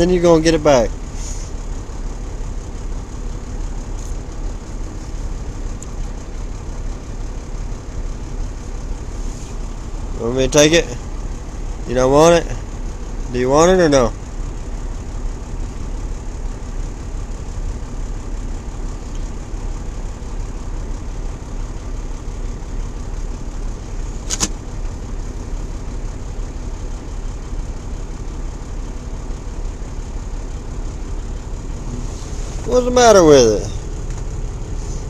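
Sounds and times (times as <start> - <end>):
diesel truck engine running: 0.0 - 35.0
sharp click: 24.2 - 24.6.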